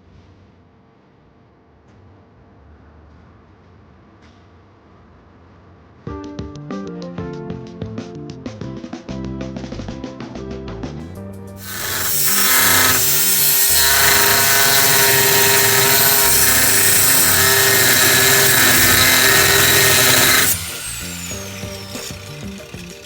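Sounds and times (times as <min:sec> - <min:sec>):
background music: 0:06.1 - 0:12.0
angle grinder grinding steel: 0:11.6 - 0:23.0.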